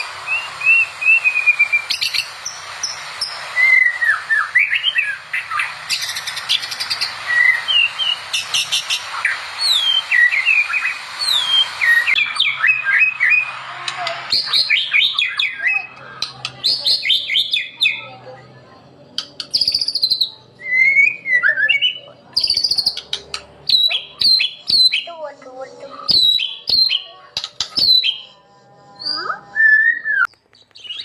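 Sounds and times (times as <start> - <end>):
songbird singing: 14.4 - 18.1, 19.2 - 25.2, 25.9 - 31.0.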